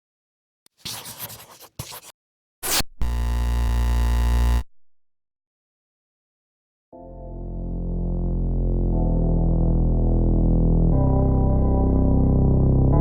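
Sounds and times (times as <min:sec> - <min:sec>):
low synth drone: 0:07.0 - 0:13.0.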